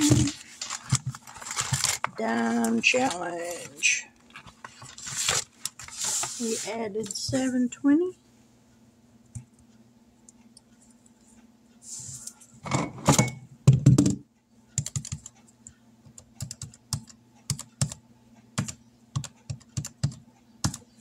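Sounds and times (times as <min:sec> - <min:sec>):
faint steady hum: 0:00.0 - 0:21.0
calculator keys clicking: 0:14.8 - 0:15.4, 0:16.1 - 0:18.0.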